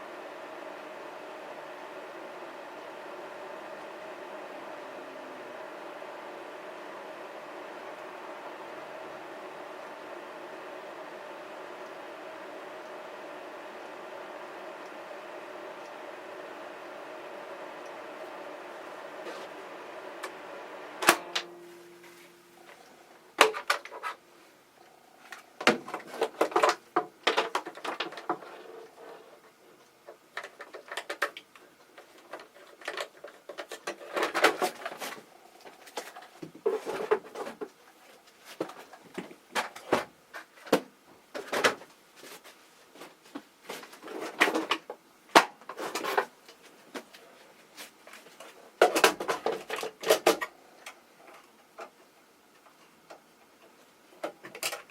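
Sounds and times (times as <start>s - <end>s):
motor hum: 0.0s - 23.4s.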